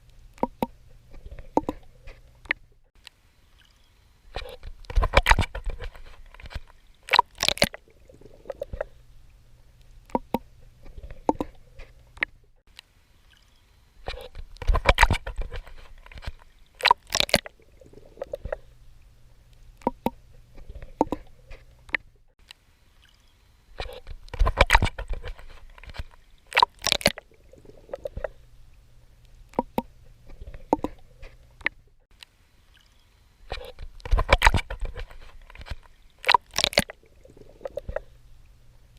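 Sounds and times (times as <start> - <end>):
watery ticks: 0.0 - 23.2, 23.8 - 38.6
low steady hum: 0.0 - 38.9
swimming strokes splashing: 3.6 - 9.0, 13.3 - 18.8, 23.0 - 28.5, 32.7 - 38.2.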